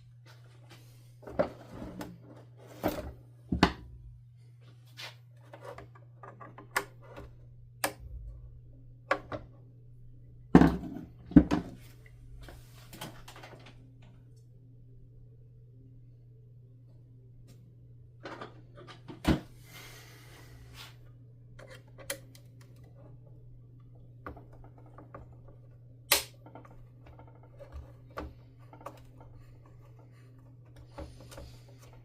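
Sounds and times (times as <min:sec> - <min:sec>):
steady low hum: 0:00.0 - 0:32.0
plastic parts clicking and knocking: 0:24.2 - 0:32.0.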